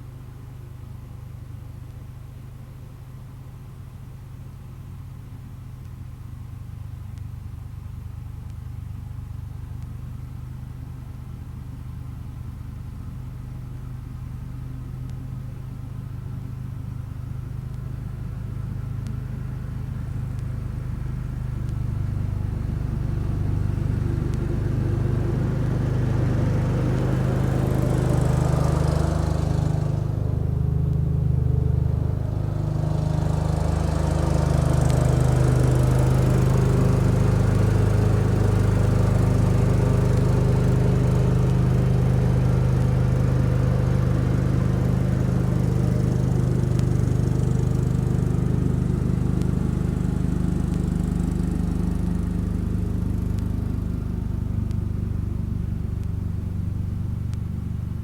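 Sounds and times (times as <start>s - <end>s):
garden tractor engine running: 21.2s - 58.0s.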